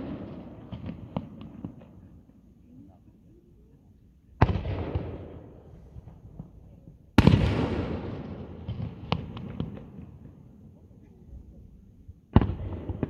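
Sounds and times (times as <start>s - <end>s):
fireworks bursting with bangs: 0.0s - 2.0s, 7.2s - 10.4s, 12.3s - 13.0s
rumble after fireworks: 0.0s - 13.0s.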